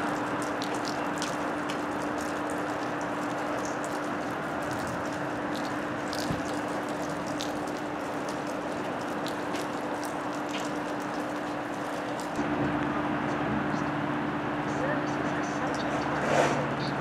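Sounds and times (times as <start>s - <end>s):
wagons clicking and rattling: 0.0s - 12.4s
freight train rolling rumble: 0.0s - 17.0s.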